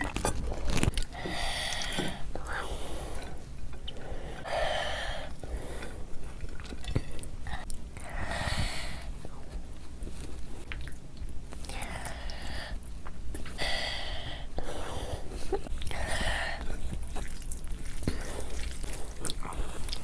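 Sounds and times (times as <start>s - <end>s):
breathy sounds: 0.4s - 9.4s, 13.4s - 17.0s
chewing food: 5.8s - 7.9s, 10.6s - 11.4s, 16.6s - 20.0s.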